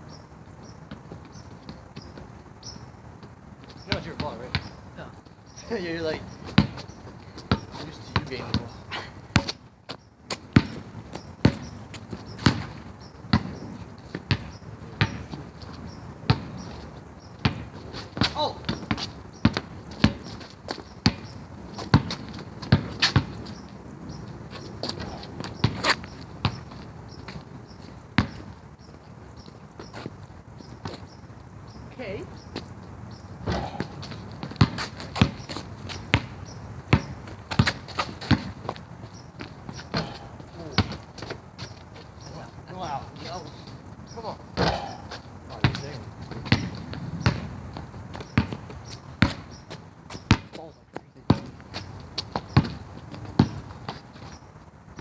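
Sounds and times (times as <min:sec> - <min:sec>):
basketball dribbling on court: 0:06.5 - 0:09.7, 0:10.3 - 0:28.6, 0:33.4 - 0:41.8, 0:44.6 - 0:54.4.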